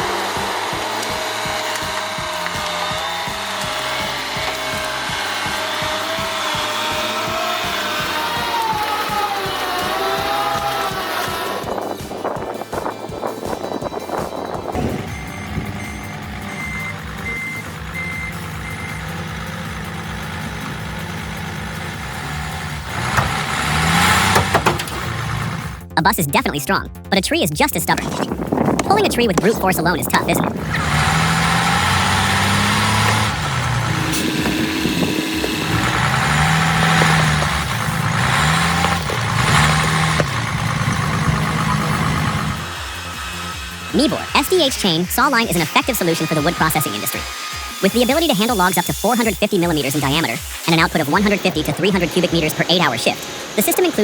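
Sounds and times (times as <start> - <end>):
diesel engine running: 0.0 - 54.0
reversing alarm beeping: 13.6 - 20.0, 32.9 - 54.0.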